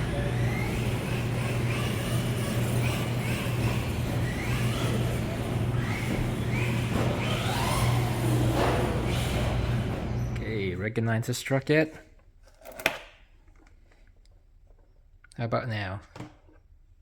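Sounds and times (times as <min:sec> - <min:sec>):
electric motors whining: 0:00.0 - 0:10.5.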